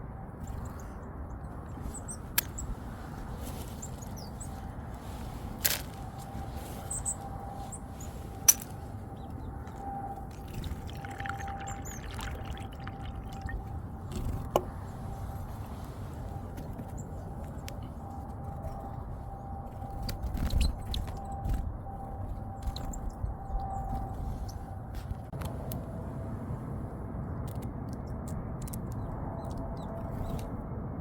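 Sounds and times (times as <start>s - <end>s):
small birds chirping: 0.4s - 25.1s.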